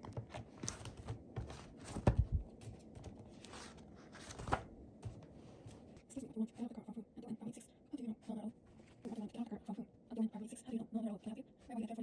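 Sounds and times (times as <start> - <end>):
soft handling knocks and rustles: 0.0 - 6.1.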